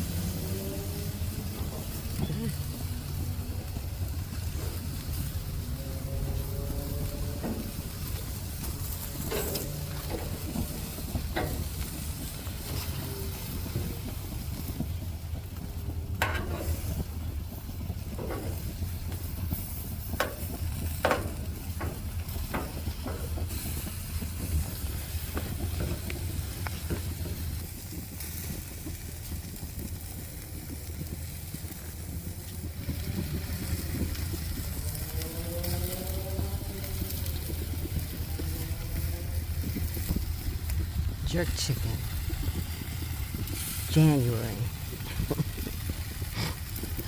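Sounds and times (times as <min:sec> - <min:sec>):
chicken wings sizzling on grill: 0:00.0 - 0:47.0
low rumble: 0:00.0 - 0:47.0
sharp clicks and knocks: 0:06.8 - 0:13.0, 0:16.2 - 0:17.2, 0:18.0 - 0:27.3.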